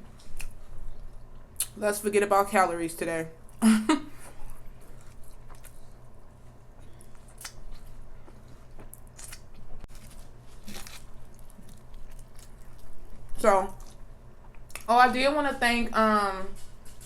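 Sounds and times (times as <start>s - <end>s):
chewing crisp food: 4.4s - 14.9s.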